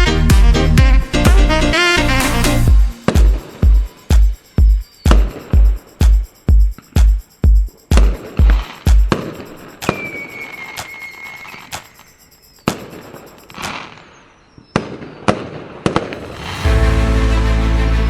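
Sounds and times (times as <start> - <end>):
music: 0.0 - 9.1, 16.3 - 18.0
firework whistle: 9.2 - 14.1
firework bangs: 14.8 - 17.0.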